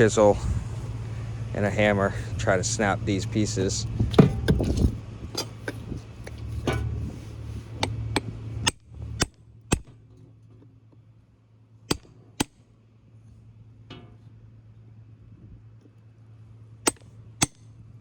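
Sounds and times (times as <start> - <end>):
hammer striking a chisel: 11.9 - 12.6, 16.9 - 17.7.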